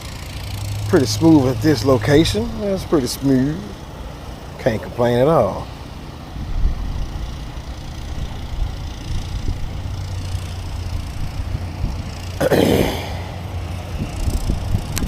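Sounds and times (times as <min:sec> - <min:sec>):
low outdoor rumble: 0:00.0 - 0:15.0
loud rushing noise: 0:08.4 - 0:15.0.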